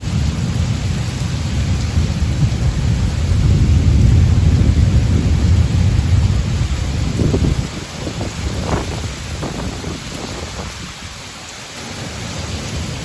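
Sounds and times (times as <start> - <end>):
rolling thunder: 0.0 - 11.0
falling rain hiss: 0.0 - 13.0.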